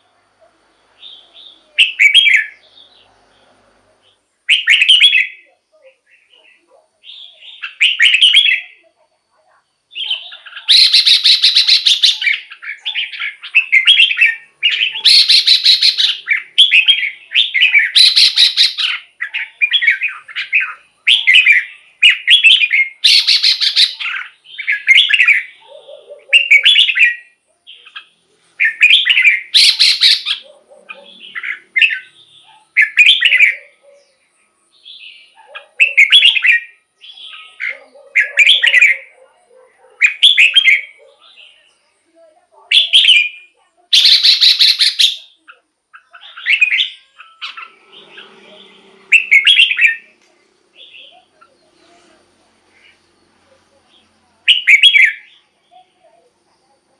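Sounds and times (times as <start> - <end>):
bird warbling song: 9.9 - 39.3, 42.8 - 56.0
harsh bird notes: 10.0 - 25.4, 46.4 - 51.4.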